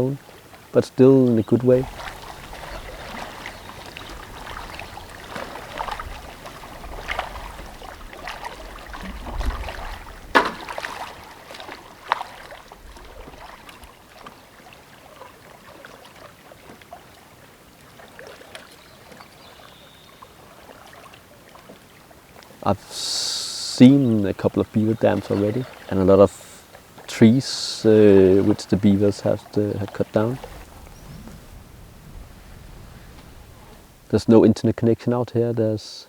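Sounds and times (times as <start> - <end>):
paddle splashing through water: 0.0 - 34.2
faint trickling water: 0.0 - 36.0
sharp knocks: 10.3 - 10.9.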